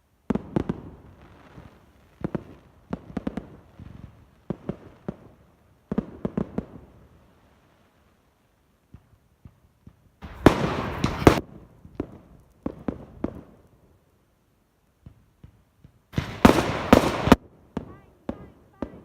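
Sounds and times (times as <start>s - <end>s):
fireworks bangs and crackling: 0.2s - 14.0s, 14.9s - 19.0s
single firework pops: 8.9s - 13.5s.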